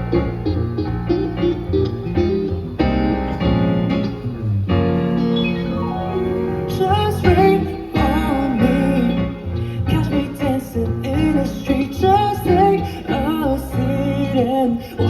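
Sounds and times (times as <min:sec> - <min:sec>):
bass: 0:00.0 - 0:15.0
sustained keyboard chords: 0:00.0 - 0:15.0
wavering higher melody line: 0:05.2 - 0:08.4.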